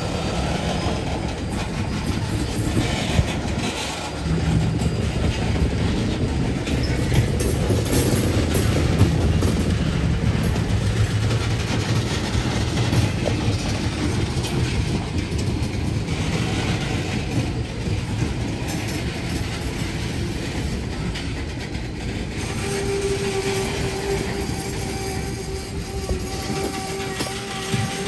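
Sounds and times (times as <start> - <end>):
train wheels rolling on rails: 0.0 - 28.0
wheel squeal: 22.4 - 28.0.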